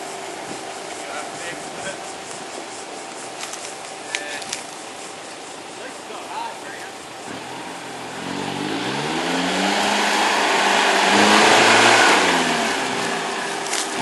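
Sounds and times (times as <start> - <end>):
vehicle engine revving under load: 6.8 - 14.0.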